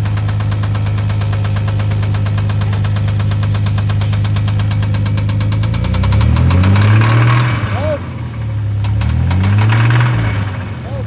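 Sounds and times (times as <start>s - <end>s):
rapid ticking knock: 0.0s - 7.5s
car engine idling: 0.0s - 11.0s.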